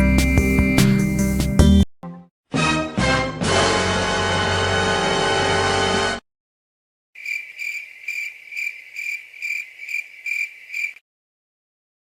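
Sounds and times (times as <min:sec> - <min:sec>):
cricket chirping: 0:07.2 - 0:11.0.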